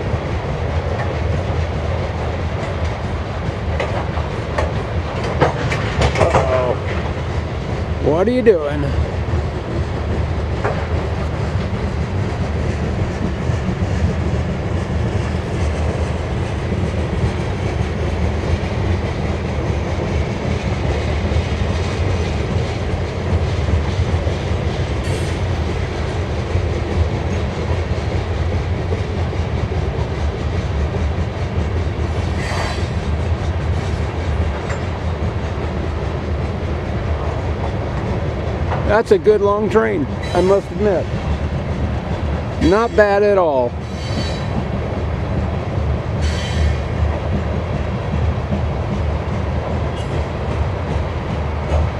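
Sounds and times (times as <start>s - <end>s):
freight train rolling past: 0.0s - 51.9s
wheel squeal: 43.8s - 44.5s.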